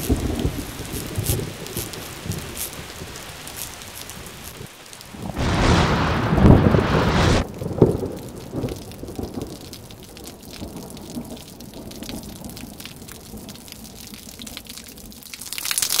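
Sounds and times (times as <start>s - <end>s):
raindrops ticking on hard surface: 0.0s - 5.4s, 7.5s - 16.0s
rain falling: 0.0s - 16.0s
low rumble of thunder: 5.2s - 12.6s.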